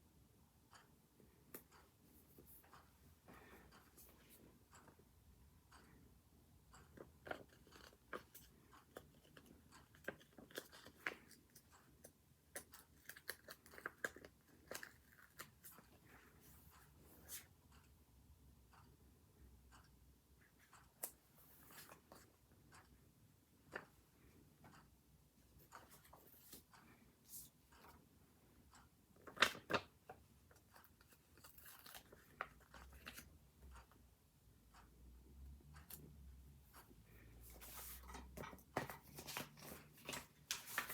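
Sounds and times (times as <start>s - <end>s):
light ticks and rustles: 23.6s - 34.0s, 34.7s - 40.9s
paper crackling: 38.8s - 40.9s.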